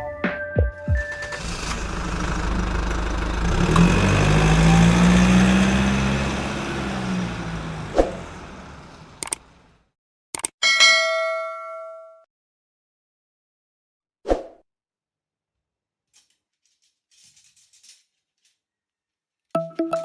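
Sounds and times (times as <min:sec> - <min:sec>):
heavy vehicle engine running: 0:01.0 - 0:09.8.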